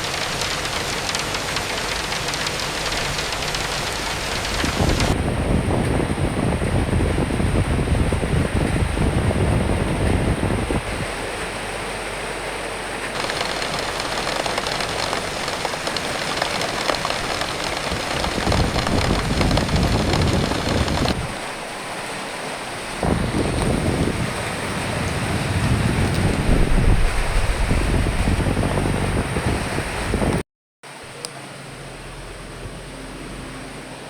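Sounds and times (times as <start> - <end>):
steady rain hiss: 0.0 - 5.2, 13.0 - 27.4
wind gusting: 0.0 - 10.9, 13.2 - 22.0, 22.8 - 30.4.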